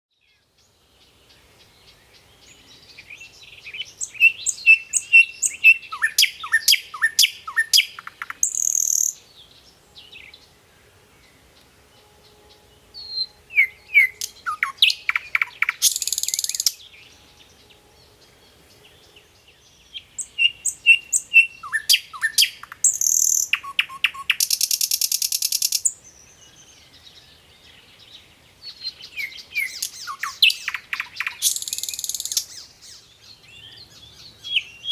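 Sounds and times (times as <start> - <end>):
songbird singing: 0.1 - 34.9.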